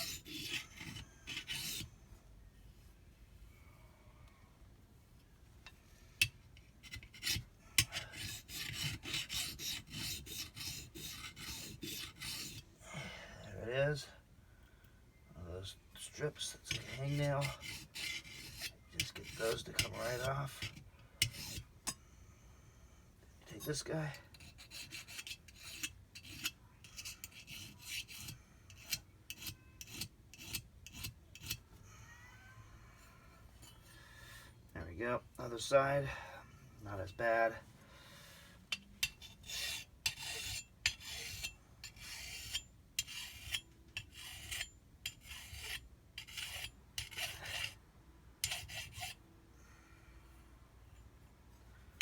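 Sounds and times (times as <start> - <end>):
metal file rasping: 0.0 - 1.9, 6.2 - 12.6, 16.4 - 22.0, 23.5 - 31.6, 38.7 - 47.8, 48.4 - 49.2
file tapping on metal: 5.6 - 12.6, 16.7 - 22.0, 24.3 - 31.6, 38.7 - 47.8, 48.4 - 49.2.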